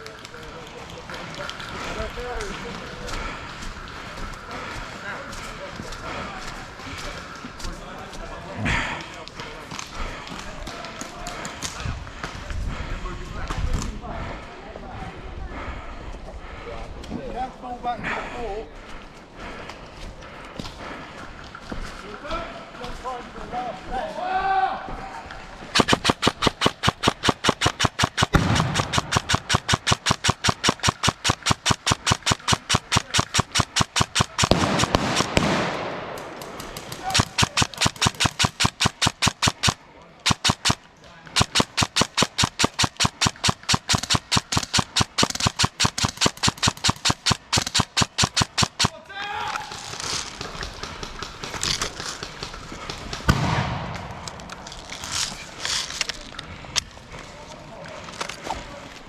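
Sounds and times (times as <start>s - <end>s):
airsoft gun firing: 25.8s - 40.8s, 41.4s - 49.0s, 53.2s - 54.3s.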